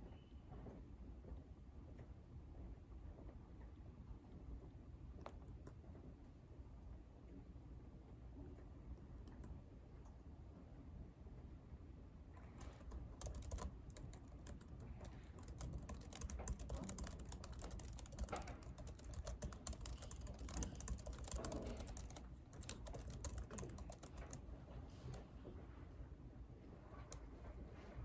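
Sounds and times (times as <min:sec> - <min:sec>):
computer keyboard typing: 0:12.4 - 0:24.5.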